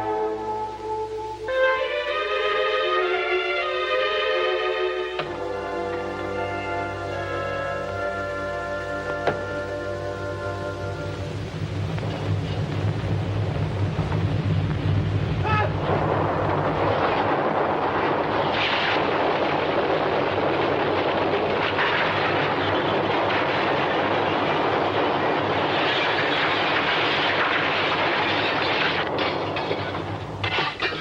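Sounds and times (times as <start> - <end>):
low steady tones: 0.0 - 31.0
earthquake rumbling roar: 11.3 - 31.0.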